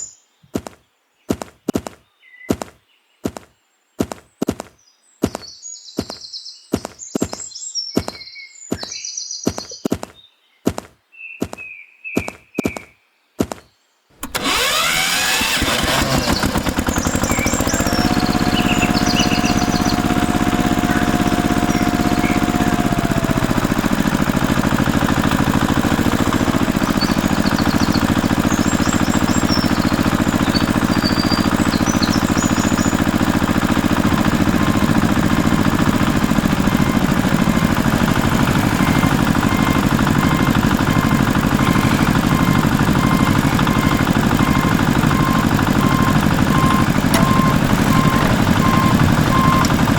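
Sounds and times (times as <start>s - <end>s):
small tractor engine running: 14.2s - 49.9s.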